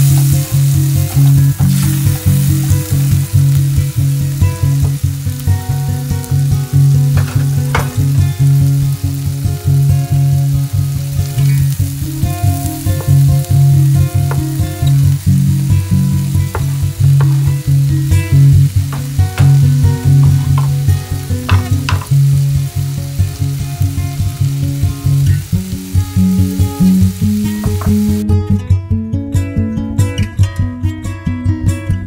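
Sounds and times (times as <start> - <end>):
onions and tomato sizzling in pan: 0.0 - 28.3
background music with bass line: 0.0 - 32.0
stirring clinks: 16.5 - 22.2.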